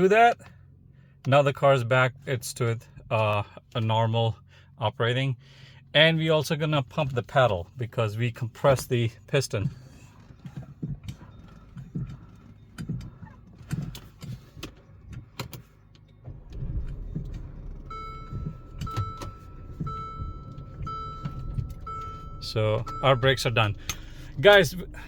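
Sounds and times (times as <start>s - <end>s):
low steady rumble: 0.0s - 25.0s
brake pedal clunks and clicks: 8.6s - 25.0s
car warning chime beeping: 16.0s - 25.0s.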